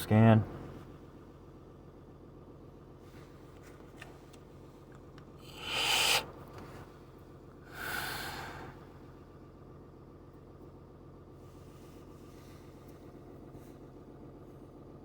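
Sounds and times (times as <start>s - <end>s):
diesel engine idling: 0.0s - 3.6s, 4.2s - 15.0s
loud breaths close to microphone: 5.4s - 6.9s, 7.6s - 9.1s.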